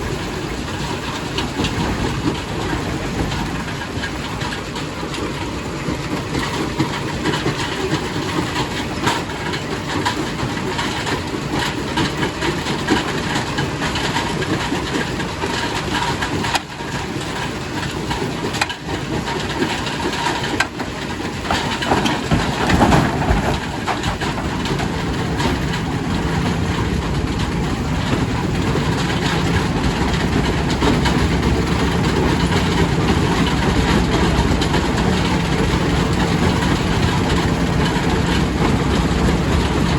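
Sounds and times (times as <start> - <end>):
heavy mechanical rumble: 0.0 - 39.9
steady engine hum: 0.0 - 39.9
stone clattering and cracking: 21.4 - 25.7.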